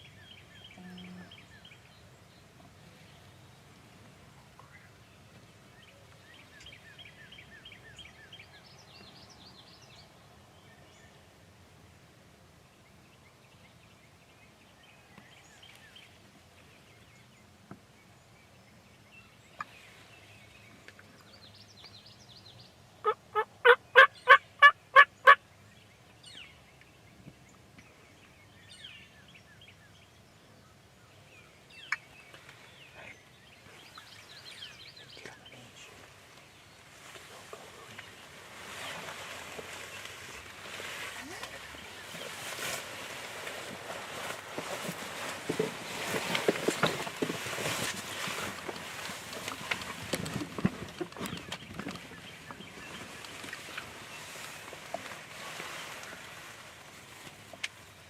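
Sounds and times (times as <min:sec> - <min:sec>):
faint songbird chirps: 0:00.0 - 0:11.3, 0:12.6 - 0:44.1
wild turkey calling: 0:23.0 - 0:25.4.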